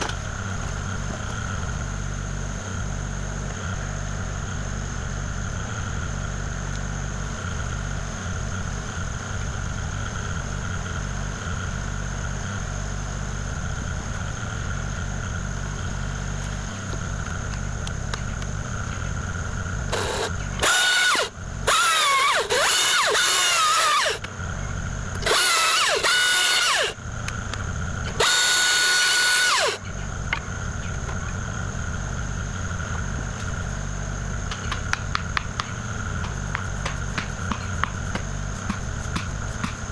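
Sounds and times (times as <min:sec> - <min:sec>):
excavator diesel engine running: 0:00.0 - 0:39.9
high-pitched squeals: 0:25.2 - 0:27.0.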